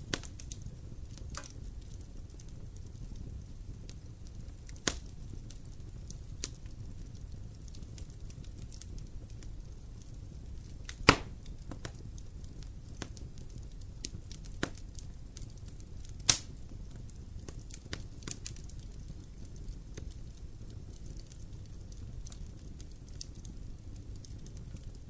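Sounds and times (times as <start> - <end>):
burning wood popping: 0.0 - 25.0
wood fire crackling: 0.0 - 25.0.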